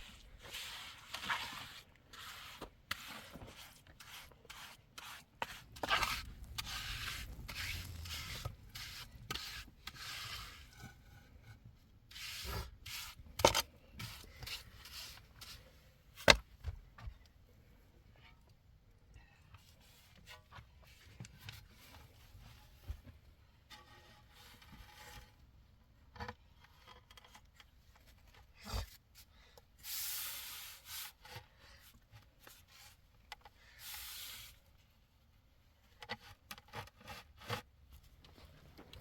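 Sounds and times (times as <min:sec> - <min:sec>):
scraping and rubbing strokes: 0:00.0 - 0:15.8, 0:29.8 - 0:31.5, 0:33.7 - 0:34.9.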